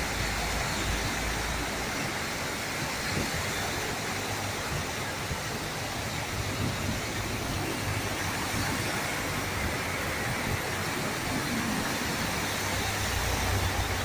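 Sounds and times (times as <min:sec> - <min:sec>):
floodwater rushing: 0:00.0 - 0:14.0
heavy rain pouring: 0:00.0 - 0:14.0.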